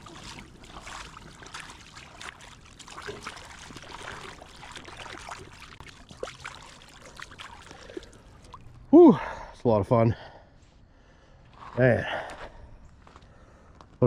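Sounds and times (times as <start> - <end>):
small splashes: 0.0 - 8.9
river water trickling: 0.0 - 9.5.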